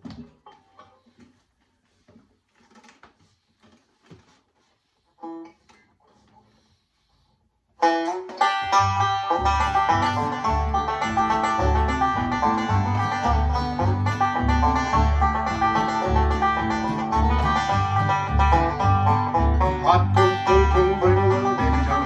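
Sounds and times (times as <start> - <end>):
plucked-string band playing country: 7.8 - 22.0
plucked string note: 8.2 - 22.0.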